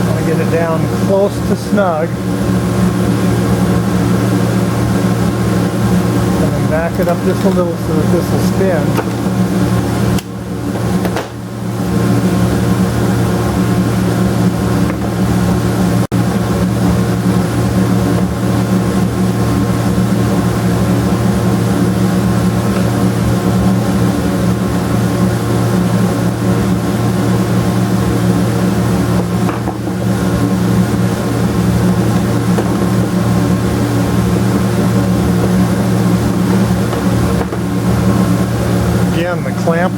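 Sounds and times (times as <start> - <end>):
electric motor humming: 0.0 - 15.6, 26.5 - 39.9.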